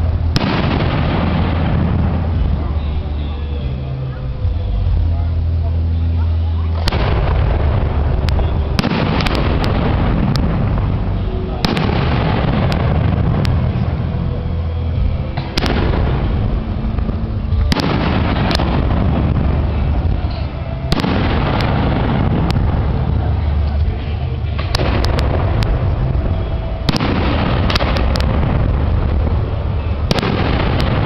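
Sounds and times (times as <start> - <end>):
sharp firework cracks: 0.0 - 2.6, 6.8 - 14.4, 15.3 - 31.0
firework shells booming: 0.0 - 2.9, 6.8 - 14.6, 15.2 - 31.0.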